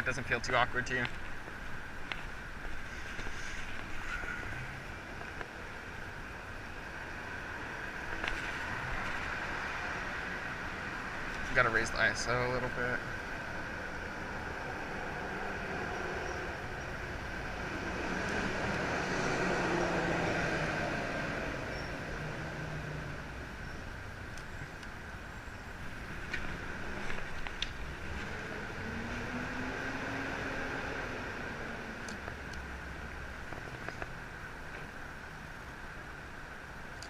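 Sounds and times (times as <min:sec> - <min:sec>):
city hum: 0:00.0 - 0:37.0
vehicle passing: 0:08.3 - 0:23.5, 0:25.8 - 0:33.4.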